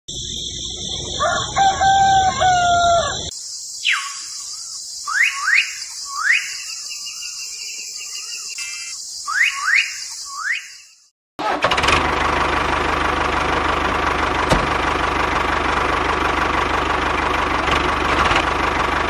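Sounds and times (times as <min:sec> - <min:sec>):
birds whistling rising calls: 0:00.2 - 0:11.1
rooster crowing: 0:00.9 - 0:03.3.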